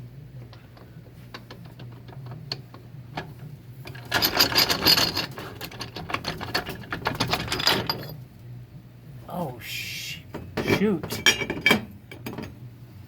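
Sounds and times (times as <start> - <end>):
metal gear parts clinking: 3.9 - 8.2.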